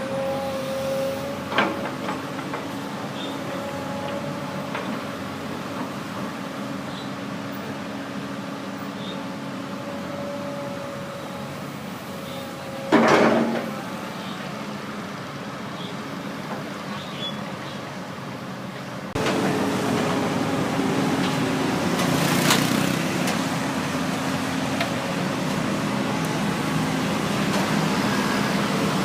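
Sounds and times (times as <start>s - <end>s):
heavy diesel engine running: 18.2s - 29.0s.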